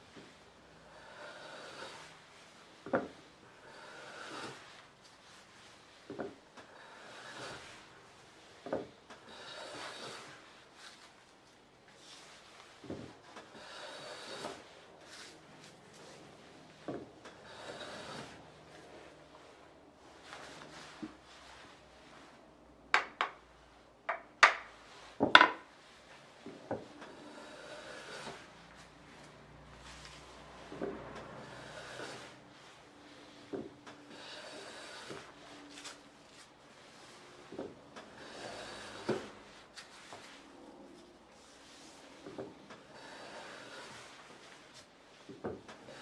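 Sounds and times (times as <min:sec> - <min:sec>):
hand plane sliding on wood: 0:00.1 - 0:11.2, 0:12.0 - 0:22.2, 0:26.1 - 0:40.5, 0:41.4 - 0:46.0
hammer tapping wooden plane: 0:23.0 - 0:23.4, 0:24.1 - 0:25.7
sharp wooden knocks: 0:23.0 - 0:23.4, 0:24.1 - 0:25.6.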